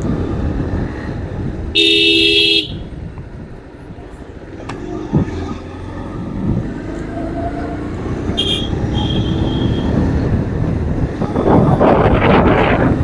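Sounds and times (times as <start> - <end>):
wind buffeting microphone: 0.0 - 1.8, 2.7 - 13.0
motorcycle engine and road rumble: 0.0 - 13.0.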